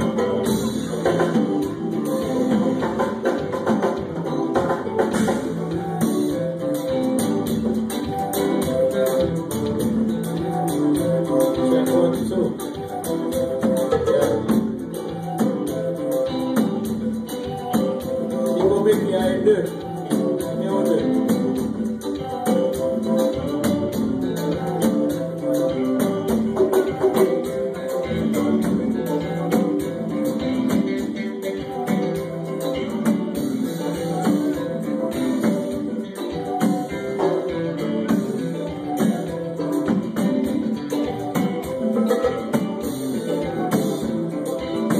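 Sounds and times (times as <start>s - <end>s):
fast high percussion beat: 0.0s - 44.9s
guitar notes: 0.0s - 44.9s
live band music: 0.0s - 44.9s.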